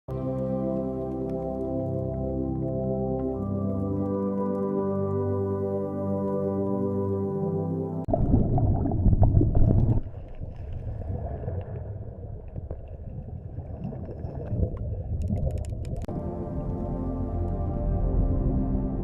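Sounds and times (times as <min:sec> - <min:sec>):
low rumbling noise: 0:08.1 - 0:15.0.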